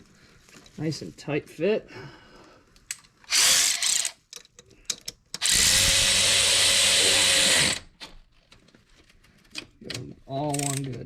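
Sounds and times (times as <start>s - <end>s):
power drill running: 3.3s - 4.1s, 5.4s - 7.8s.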